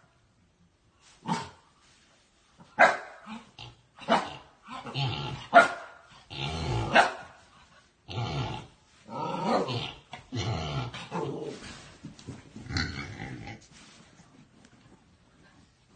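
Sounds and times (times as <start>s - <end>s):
dog growling: 6.3s - 7.0s, 8.1s - 11.6s.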